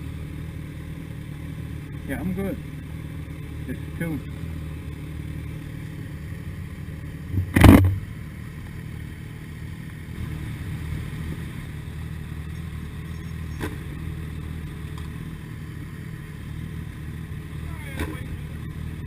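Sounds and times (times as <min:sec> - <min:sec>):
motorcycle engine idling: 0:00.0 - 0:19.0
loud thump: 0:07.3 - 0:08.1.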